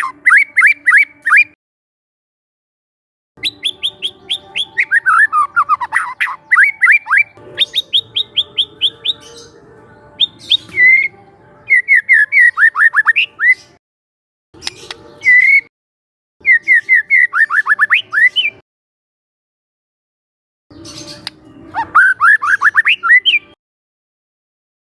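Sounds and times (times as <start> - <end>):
bird singing whistled notes: 0.0 - 1.6, 3.4 - 9.6, 10.2 - 13.8, 14.6 - 15.7, 16.4 - 18.6, 20.7 - 23.6.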